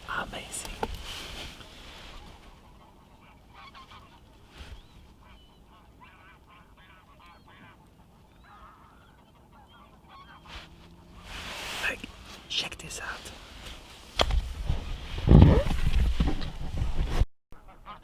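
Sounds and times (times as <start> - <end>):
waterbirds honking: 5.2 - 10.5.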